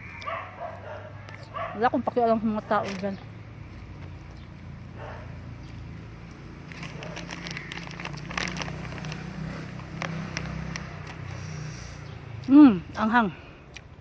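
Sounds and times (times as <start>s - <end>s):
distant traffic rumble: 0.0s - 14.0s
food clicks and crackles: 5.7s - 11.4s.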